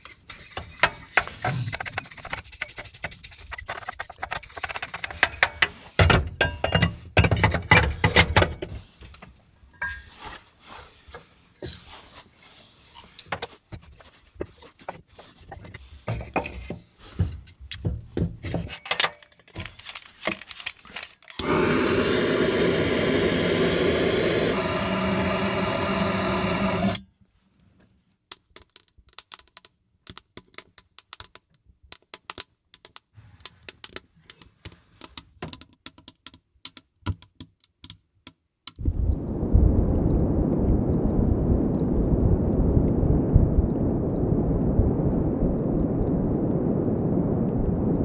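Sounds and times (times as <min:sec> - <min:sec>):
objects knocking and clinking: 0:04.2 - 0:08.6
mechanical running noise: 0:21.4 - 0:27.0.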